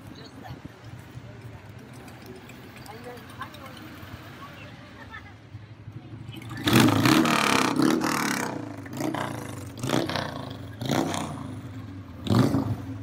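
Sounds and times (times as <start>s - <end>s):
vehicle engine revving: 6.2s - 13.0s.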